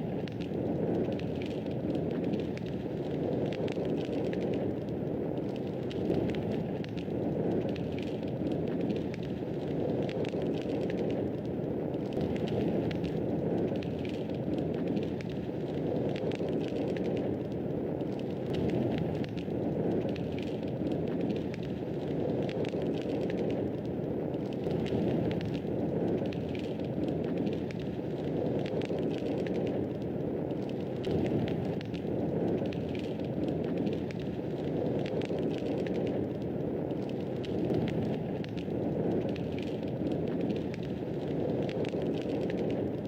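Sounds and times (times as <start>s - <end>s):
wood fire crackling: 0.0s - 43.0s.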